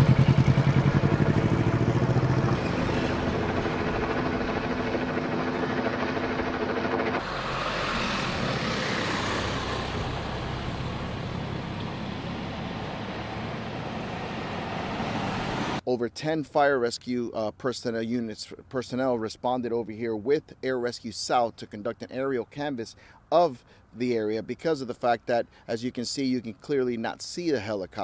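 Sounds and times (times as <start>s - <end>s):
outdoor traffic noise: 0.0s - 15.9s.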